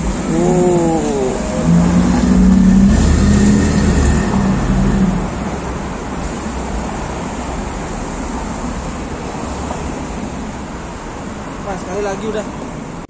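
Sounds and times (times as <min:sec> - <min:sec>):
car engine pulling away: 0:00.0 - 0:05.6
city street traffic: 0:00.0 - 0:13.0.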